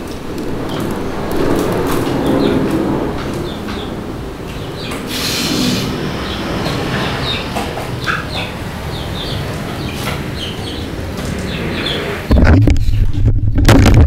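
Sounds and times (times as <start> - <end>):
steady low rumble: 0.0 - 14.0
small birds chirping: 0.6 - 12.3
brief hiss: 5.1 - 5.9.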